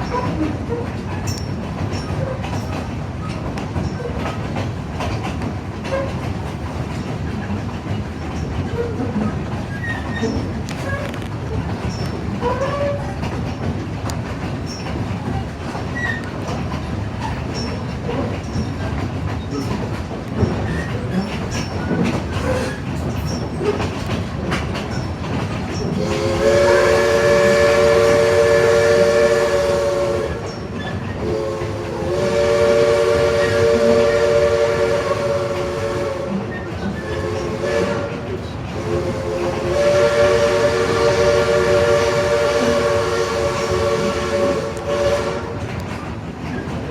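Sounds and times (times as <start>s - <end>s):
train rumbling on rails: 0.0s - 46.9s
steam locomotive chime whistle: 25.8s - 45.6s.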